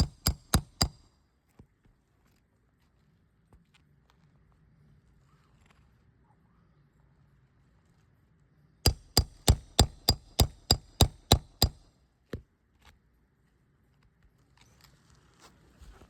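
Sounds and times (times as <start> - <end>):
hammer striking metal: 0.0 - 1.0, 8.9 - 11.8.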